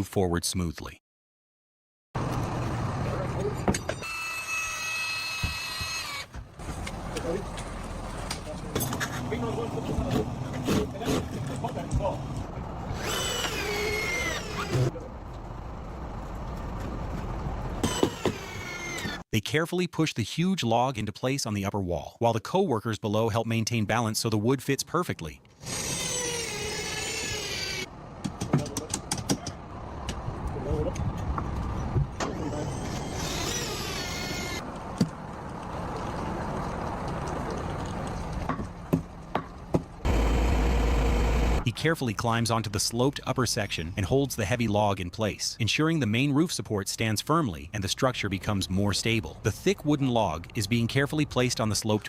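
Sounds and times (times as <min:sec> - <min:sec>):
machine motor whining: 0:12.9 - 0:14.9, 0:17.8 - 0:19.2, 0:32.2 - 0:34.6, 0:40.1 - 0:41.6
machinery engine running: 0:40.0 - 0:41.6
steady noise: 0:40.1 - 0:41.6.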